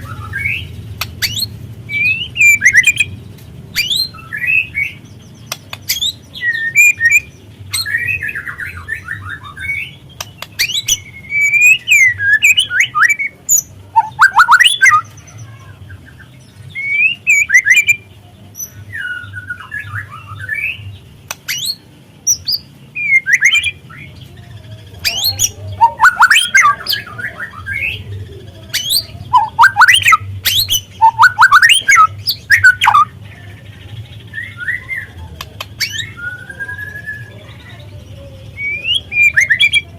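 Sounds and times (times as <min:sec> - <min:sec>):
bird singing whistled phrases: 0:00.0 - 0:03.2, 0:05.9 - 0:15.1, 0:16.7 - 0:18.0, 0:21.5 - 0:24.1, 0:25.0 - 0:28.0, 0:28.7 - 0:33.1, 0:34.3 - 0:35.2, 0:35.8 - 0:37.4, 0:38.5 - 0:39.9.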